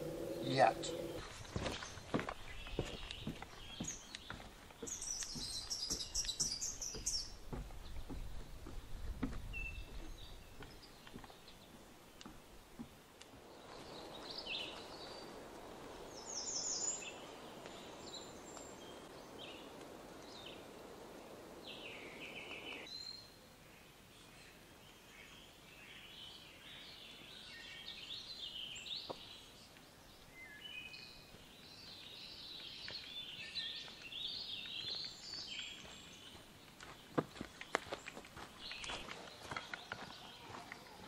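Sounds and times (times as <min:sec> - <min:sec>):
steady rushing hiss: 0:00.0 - 0:03.9, 0:11.8 - 0:23.6
forest birds singing: 0:00.0 - 0:41.0.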